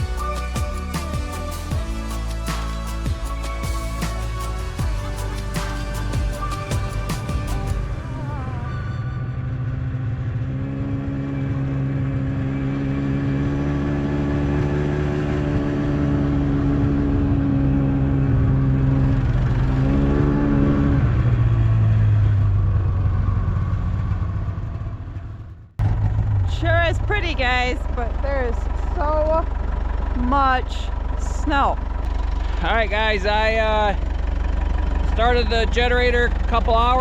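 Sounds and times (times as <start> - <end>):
tractor engine running: 0.0 - 19.9, 21.4 - 37.0.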